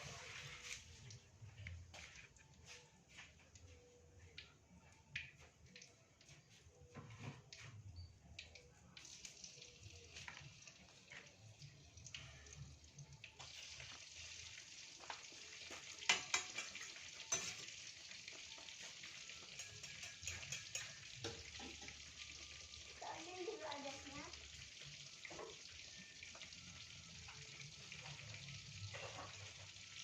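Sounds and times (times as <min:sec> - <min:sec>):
food sizzling in hot oil: 0:00.0 - 0:01.0, 0:09.0 - 0:30.0
utensil clinking against pan: 0:16.0 - 0:17.8, 0:19.3 - 0:22.0.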